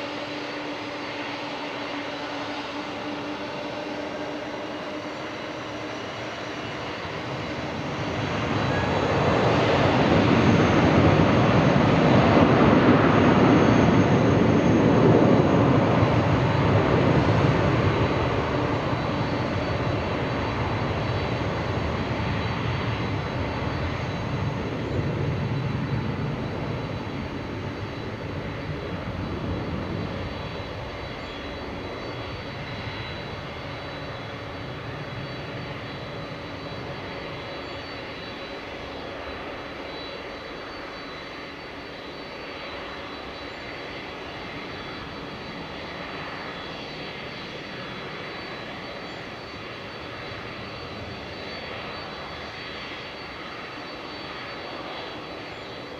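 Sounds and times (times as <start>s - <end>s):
jet engines at takeoff power: 0.0s - 55.9s.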